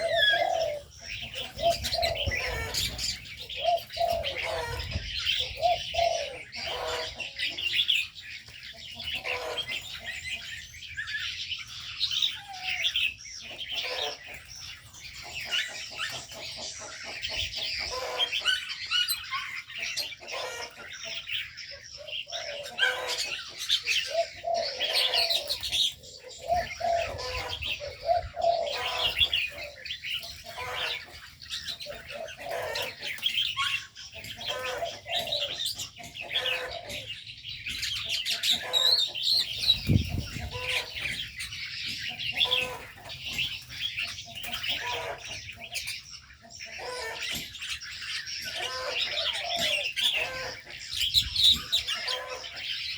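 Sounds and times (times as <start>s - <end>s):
doves cooing: 0.0s - 52.9s
small birds chirping: 0.0s - 52.9s.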